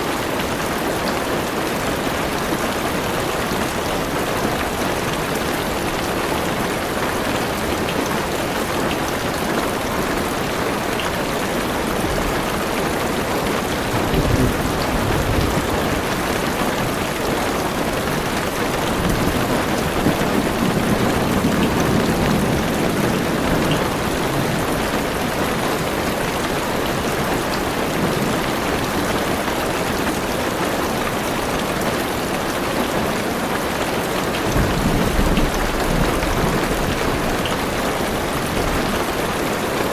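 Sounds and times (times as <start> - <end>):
heavy rain on a car roof: 0.0 - 39.9
low thunder rumbles: 11.7 - 25.5, 34.5 - 39.1.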